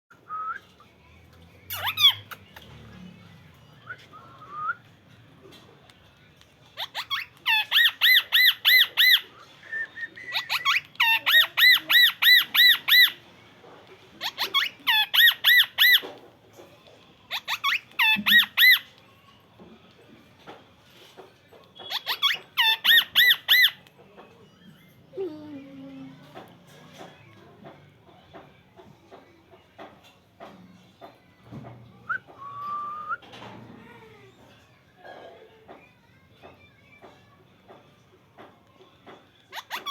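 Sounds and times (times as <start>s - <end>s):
parrot squawking: 1.7s - 2.5s, 6.8s - 9.4s, 10.3s - 13.2s, 14.2s - 16.1s, 17.3s - 18.9s, 21.9s - 23.8s, 39.5s - 39.9s.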